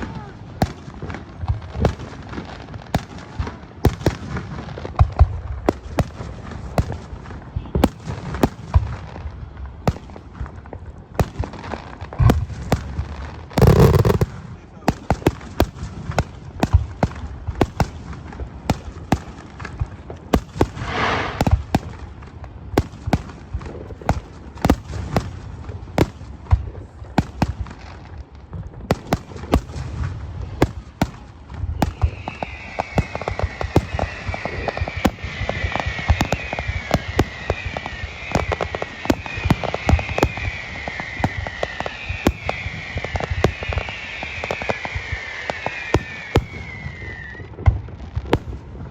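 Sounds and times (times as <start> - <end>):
fireworks bangs and pops: 0.0 - 48.9
high falling whistle: 20.8 - 21.5, 31.7 - 47.5.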